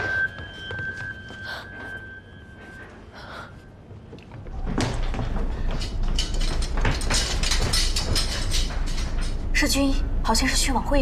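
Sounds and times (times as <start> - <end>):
knocks and clatter: 4.2 - 9.8.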